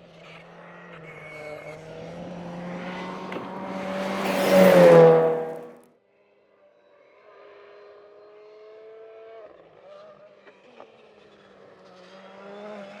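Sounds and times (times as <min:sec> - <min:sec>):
rally car passing at speed: 0:00.0 - 0:05.8, 0:11.8 - 0:13.0.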